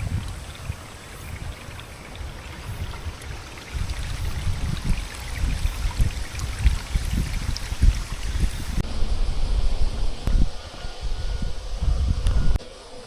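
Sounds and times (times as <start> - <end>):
water flowing: 0.0 - 8.9
wind buffeting microphone: 0.0 - 12.6.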